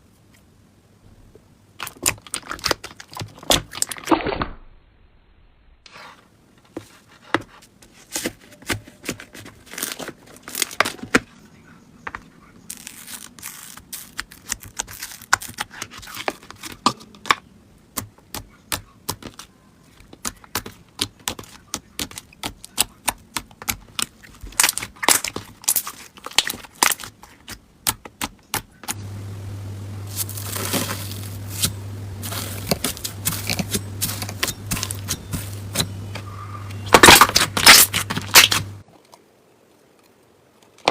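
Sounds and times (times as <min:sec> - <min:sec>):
slime crackling and popping: 0:01.8 - 0:04.2, 0:12.7 - 0:16.7, 0:30.1 - 0:36.0, 0:36.9 - 0:38.8
steady low hum: 0:28.7 - 0:38.9.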